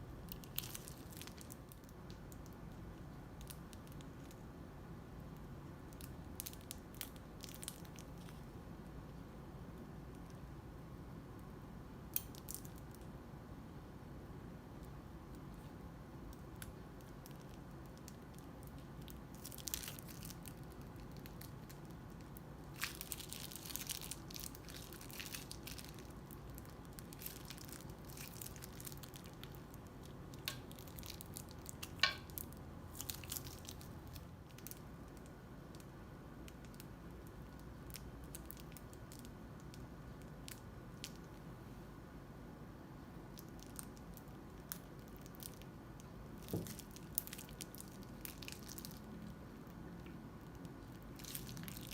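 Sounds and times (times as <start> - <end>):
crunchy slime squished by hand: 0.0 - 2.7, 16.3 - 35.9, 43.4 - 51.9.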